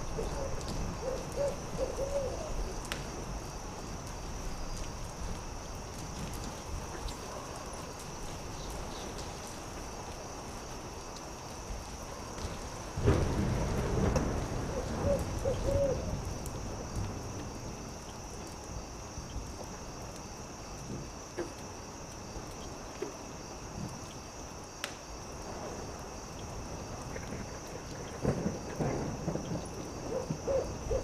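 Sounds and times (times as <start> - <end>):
crickets chirping: 0.0 - 31.0
owl hooting: 0.2 - 2.5, 14.7 - 16.1, 30.1 - 31.0
campfire crackling and popping: 2.6 - 29.9.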